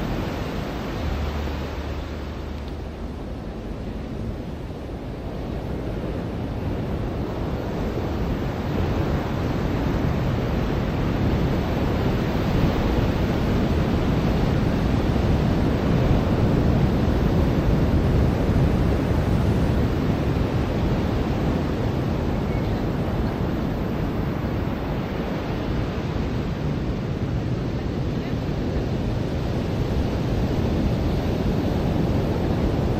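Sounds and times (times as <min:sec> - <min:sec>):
ocean surf on beach: 0:00.0 - 0:32.9.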